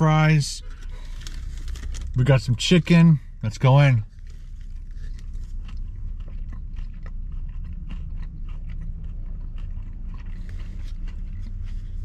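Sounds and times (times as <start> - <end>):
low steady hum: 0.0 - 12.0
man chewing with wet mouth clicks: 4.1 - 12.0.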